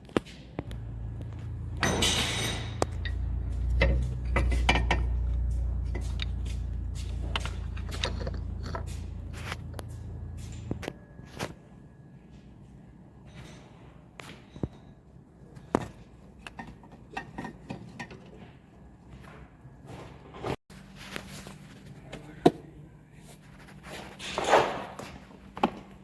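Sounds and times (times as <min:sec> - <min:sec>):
tools clicking and knocking: 0:00.7 - 0:10.9
scraping rustle: 0:00.7 - 0:11.6.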